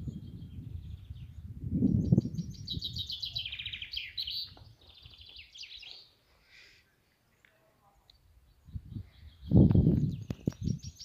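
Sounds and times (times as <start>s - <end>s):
songbird trilling: 0.1s - 6.1s.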